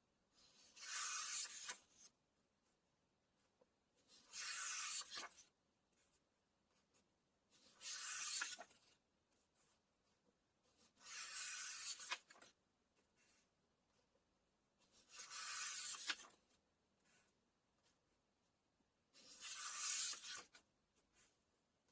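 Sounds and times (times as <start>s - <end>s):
book pages turning: 0.6s - 2.1s, 4.2s - 5.5s, 7.6s - 9.0s, 10.8s - 12.5s, 15.0s - 16.5s, 19.2s - 20.6s.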